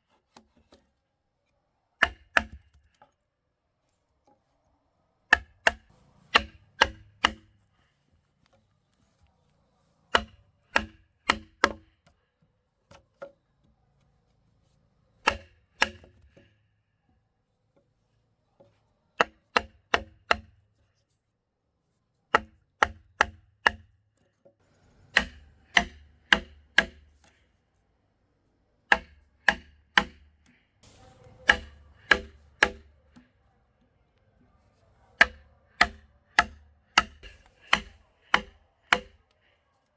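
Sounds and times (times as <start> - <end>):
tool striking wood: 2.0 - 2.7, 5.3 - 7.5, 10.2 - 11.8, 22.4 - 23.9, 25.1 - 27.3, 28.9 - 33.3, 35.2 - 39.2.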